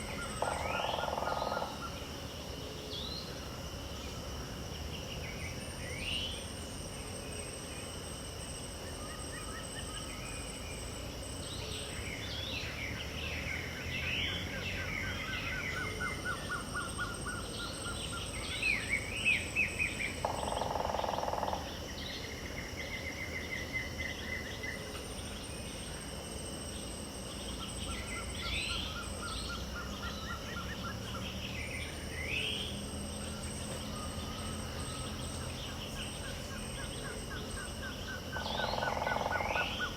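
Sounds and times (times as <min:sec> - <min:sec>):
high insect buzz: 0:00.0 - 0:39.9
insects droning: 0:00.0 - 0:39.9
birds chirping and calling: 0:27.5 - 0:39.9.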